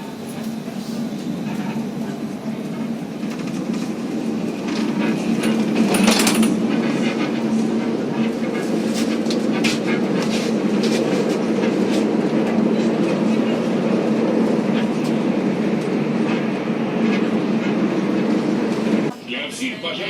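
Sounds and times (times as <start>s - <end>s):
tram humming drone: 0.0s - 20.0s
wheels clicking on rails: 2.6s - 13.6s.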